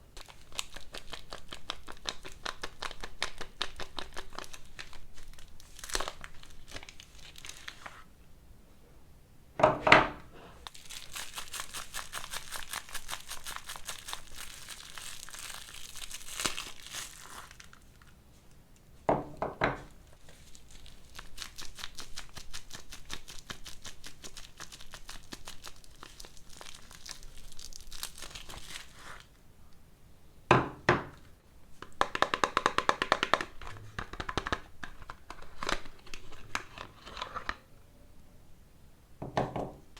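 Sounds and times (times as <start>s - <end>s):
wrapper crinkling and tearing: 0.1s - 8.1s, 10.6s - 18.2s, 20.1s - 29.4s, 33.2s - 37.6s.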